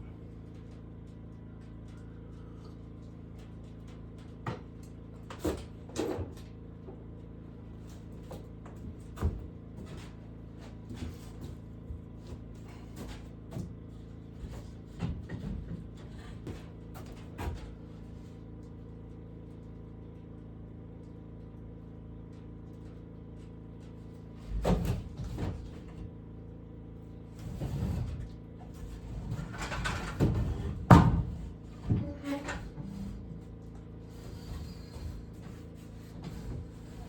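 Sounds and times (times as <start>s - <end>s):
steady low hum: 0.0s - 37.0s
wooden objects knocking and thumping: 27.7s - 33.2s.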